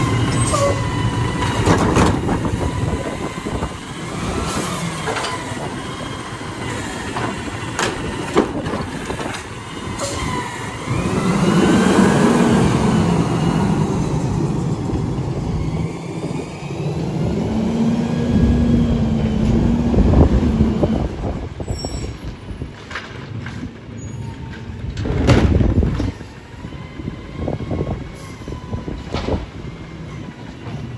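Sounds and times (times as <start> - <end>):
gliding squeals and whines: 0.0 - 22.6
garbage truck engine: 0.0 - 30.9.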